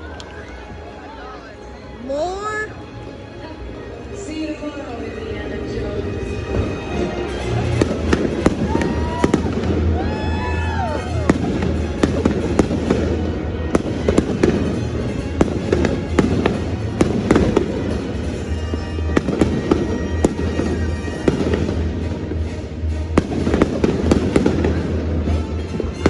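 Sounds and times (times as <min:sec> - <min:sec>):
music playing: 0:00.0 - 0:26.0
fireworks banging and crackling: 0:06.3 - 0:26.0.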